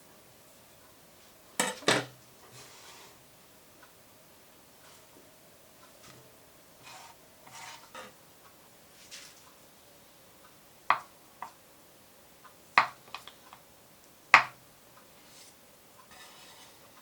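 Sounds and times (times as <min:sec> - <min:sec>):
sharp kitchen knocks: 0:14.4 - 0:14.6.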